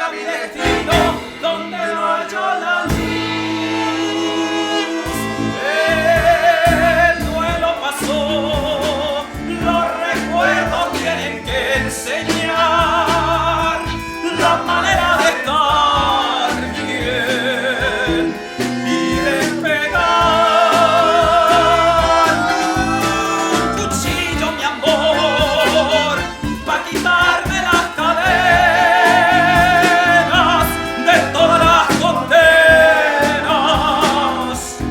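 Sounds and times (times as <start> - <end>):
guitar: 0.0 - 34.9
drums: 0.5 - 2.1, 2.8 - 34.9
bass: 0.6 - 1.5, 2.9 - 34.9
lead melody with vibrato: 8.4 - 34.9.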